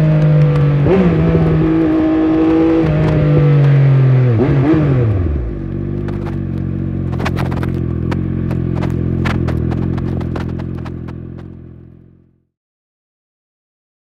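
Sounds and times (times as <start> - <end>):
motorcycle engine idling: 5.4 - 12.4.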